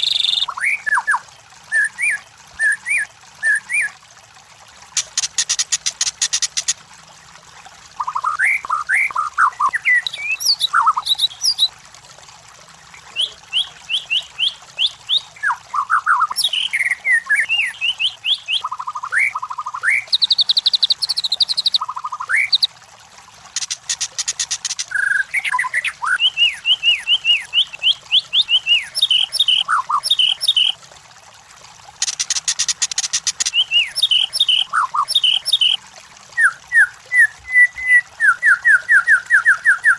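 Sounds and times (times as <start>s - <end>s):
songbird singing: 0.0s - 3.9s, 8.0s - 11.7s, 13.0s - 22.7s, 23.6s - 30.8s, 32.0s - 35.8s, 36.4s - 39.9s
rapid dry bird rattles: 23.5s - 24.9s, 32.0s - 33.6s.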